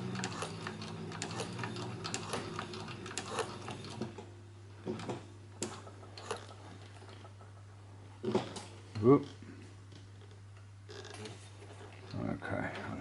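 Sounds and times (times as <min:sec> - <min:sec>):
sewing machine stitching: 0:00.0 - 0:04.2, 0:04.9 - 0:07.3.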